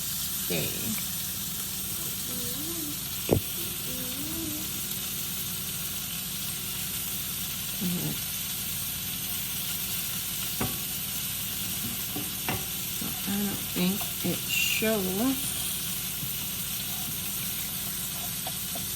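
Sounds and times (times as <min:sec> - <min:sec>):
steak sizzling in a pan: 0:00.0 - 0:18.9.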